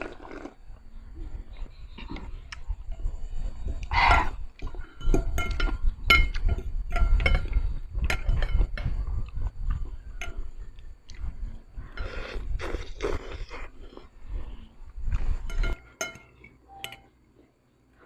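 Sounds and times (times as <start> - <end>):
slurping and chewing: 0.0 - 5.7, 10.7 - 15.7
utensils clinking against dish: 4.9 - 9.0, 15.4 - 17.1.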